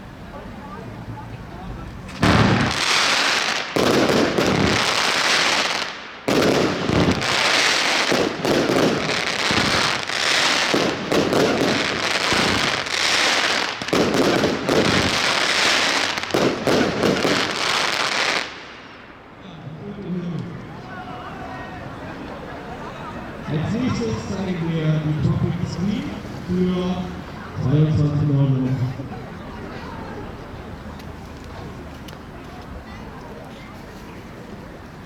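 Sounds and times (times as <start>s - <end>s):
fireworks battery firing: 2.1s - 18.6s.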